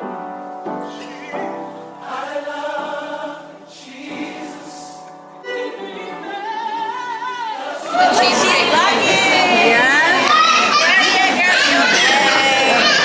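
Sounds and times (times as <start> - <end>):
choir singing: 7.7 - 13.0.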